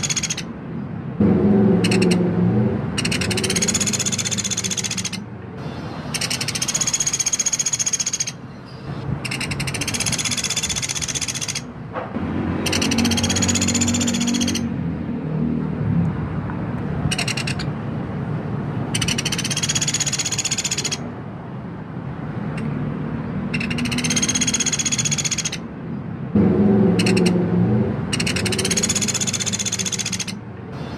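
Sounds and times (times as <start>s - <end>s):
woodpecker rattling call: 0.0s - 0.5s, 1.7s - 2.3s, 2.9s - 11.7s, 12.6s - 14.7s, 17.1s - 17.8s, 18.9s - 21.1s, 23.5s - 25.7s, 26.9s - 27.4s, 28.1s - 30.9s.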